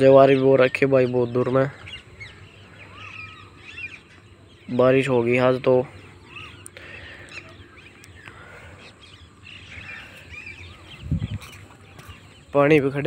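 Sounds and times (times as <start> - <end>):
birds chirping and calling: 0.0 - 13.0
low rumble on microphone: 7.6 - 12.6.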